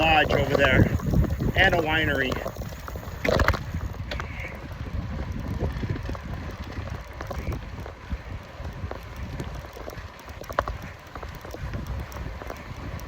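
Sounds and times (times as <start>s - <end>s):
bicycle tyres ticking and rattling: 0.0s - 13.0s
wind rushing over microphone: 0.0s - 13.0s.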